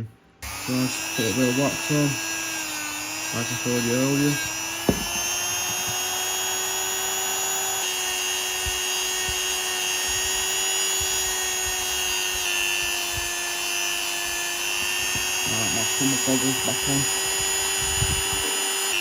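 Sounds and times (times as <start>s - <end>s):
power tool motor whining: 0.4s - 19.0s
faint knocks: 4.9s - 6.0s.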